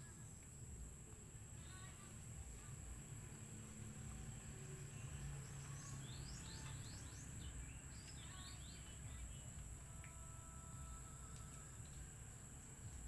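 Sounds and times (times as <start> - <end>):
small bird chirping: 4.8 - 9.6.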